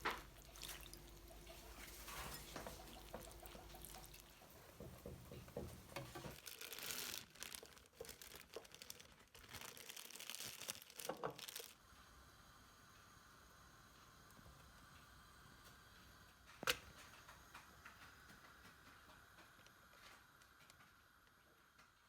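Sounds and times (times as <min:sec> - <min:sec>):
faint steady hum: 0:00.0 - 0:06.4, 0:11.6 - 0:22.0
kitchen utensils rustling and clicking: 0:00.0 - 0:07.2.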